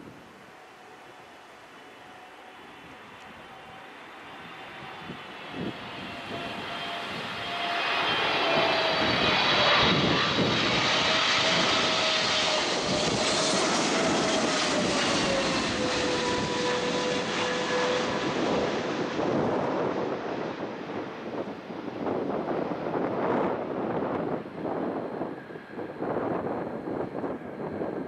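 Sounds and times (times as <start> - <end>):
jet engine noise: 0.0 - 28.0
engine whine falling in pitch: 3.3 - 20.2.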